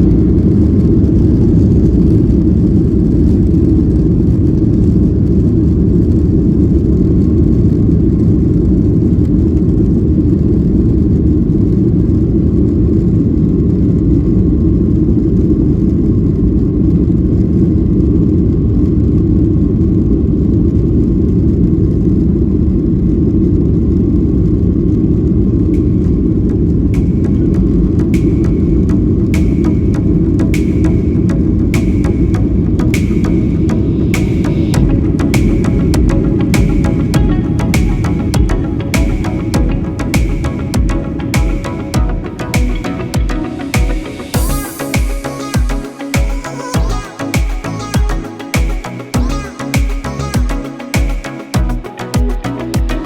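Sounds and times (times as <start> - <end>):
jet engines rumbling: 0.0 - 52.1.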